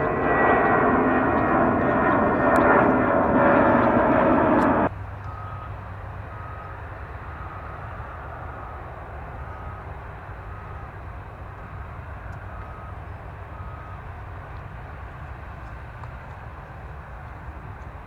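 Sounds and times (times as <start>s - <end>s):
jet engines rumbling: 0.0s - 4.9s.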